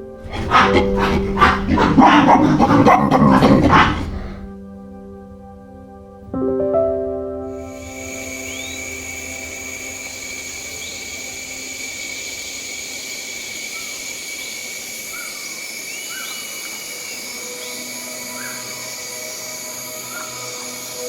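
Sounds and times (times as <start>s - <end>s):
bird chirps: 8.0s - 11.4s, 12.1s - 19.2s.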